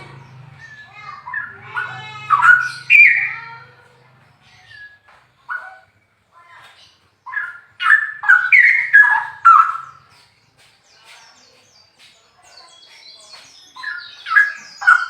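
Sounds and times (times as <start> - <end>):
higher twittering: 0.0 - 6.0
bulbul singing: 0.0 - 15.0.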